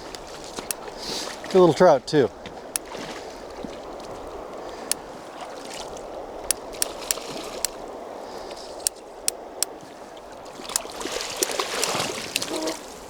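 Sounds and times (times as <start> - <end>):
sharp clicks: 0.0 - 1.0, 6.4 - 8.0, 8.7 - 9.8
river water flowing: 0.0 - 13.0.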